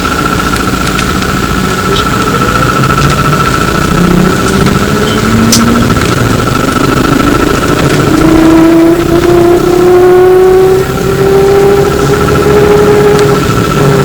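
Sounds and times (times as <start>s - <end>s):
electric motor whining: 0.0s - 14.0s
steady high-pitched tone: 0.0s - 14.0s
sharp click: 5.4s - 6.1s.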